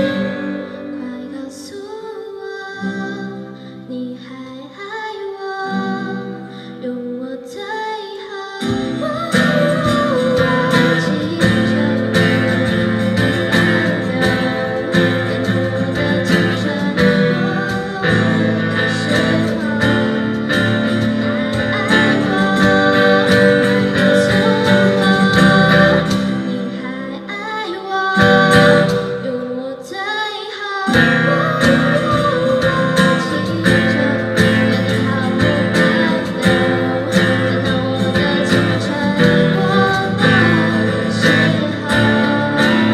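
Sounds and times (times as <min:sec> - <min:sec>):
strummed guitar: 0:00.0 - 0:42.9
bass guitar: 0:08.8 - 0:26.6, 0:28.2 - 0:29.2, 0:31.0 - 0:42.9.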